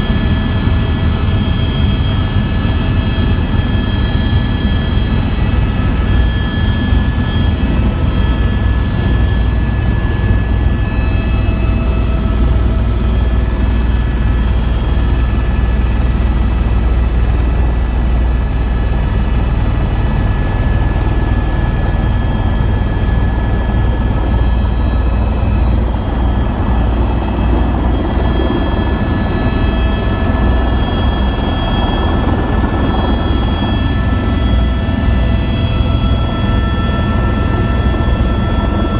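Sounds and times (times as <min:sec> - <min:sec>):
helicopter rotor and engine: 0:00.0 - 0:38.9.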